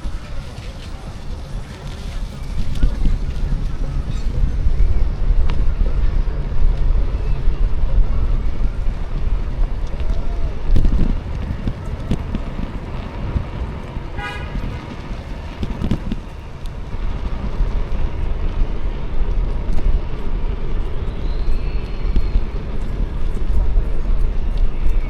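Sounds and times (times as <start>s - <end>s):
street traffic: 0.0s - 25.0s
wind on microphone: 0.0s - 25.0s
short high horn toot: 14.2s - 14.8s
faint high whistle-like tone: 20.8s - 23.0s.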